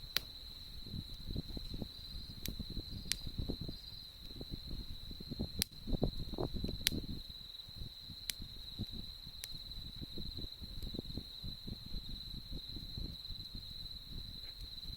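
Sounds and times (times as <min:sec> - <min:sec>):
burning wood popping: 0:00.0 - 0:11.9
campfire crackling: 0:00.0 - 0:14.9.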